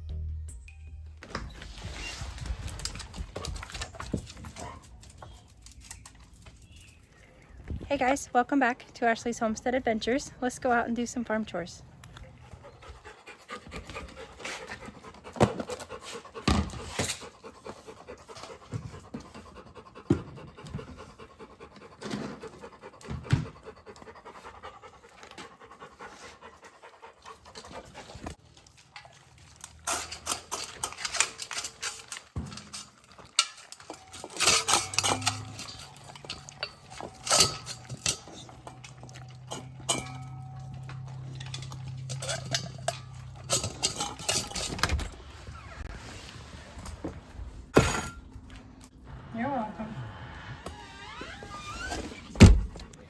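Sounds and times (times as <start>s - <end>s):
dog panting: 11.9s - 45.0s.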